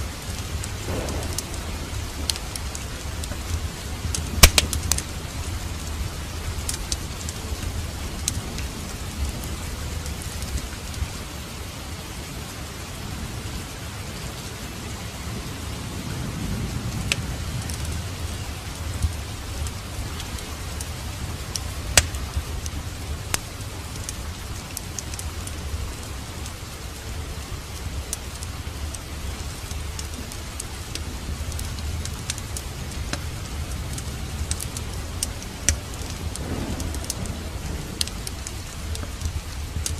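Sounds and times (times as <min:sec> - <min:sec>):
wood fire crackling and popping: 0:00.0 - 0:12.1, 0:13.7 - 0:39.9
steady rain: 0:00.0 - 0:39.9
low rumble: 0:00.5 - 0:11.2, 0:33.5 - 0:39.9.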